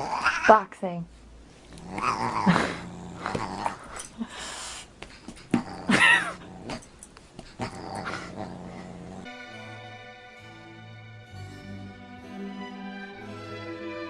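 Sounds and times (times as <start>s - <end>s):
animal crying and growling: 0.0s - 0.6s, 1.7s - 4.3s, 5.5s - 6.9s, 7.6s - 9.3s.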